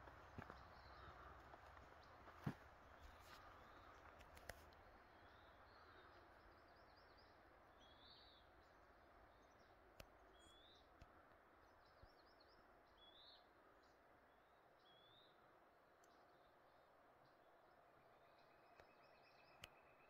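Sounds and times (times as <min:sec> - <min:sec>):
low outdoor hiss: 0:00.0 - 0:20.0
songbird singing: 0:00.0 - 0:20.0
faint clicks: 0:03.9 - 0:04.8.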